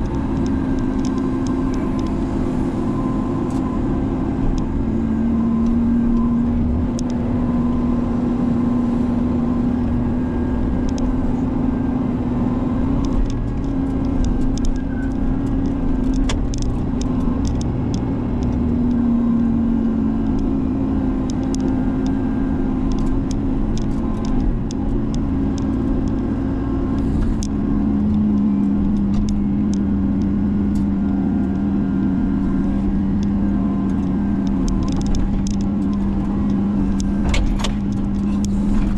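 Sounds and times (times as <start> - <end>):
excavator diesel engine running: 0.0 - 38.9
light sharp clicks and knocks: 33.2 - 38.9.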